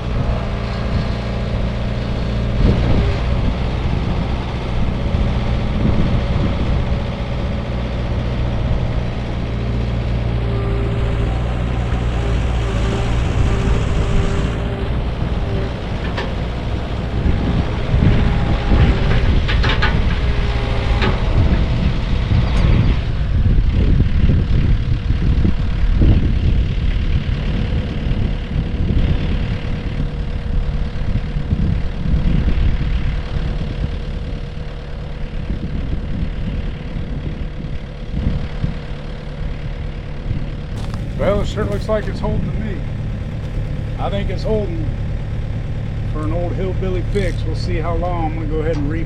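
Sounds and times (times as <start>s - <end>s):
hydraulic whine: 0.0s - 23.9s, 40.6s - 49.0s
diesel engine running: 0.0s - 49.0s.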